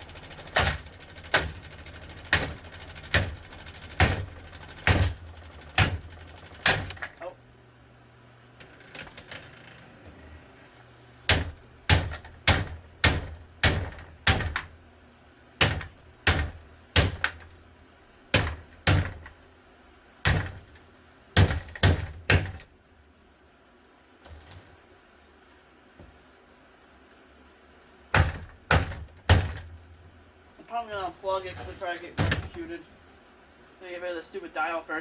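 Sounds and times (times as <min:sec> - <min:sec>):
plastic fan being smashed: 0:02.2 - 0:05.2, 0:05.8 - 0:07.2, 0:11.3 - 0:14.7, 0:15.6 - 0:17.5, 0:18.4 - 0:19.3, 0:20.3 - 0:20.7, 0:28.2 - 0:29.8.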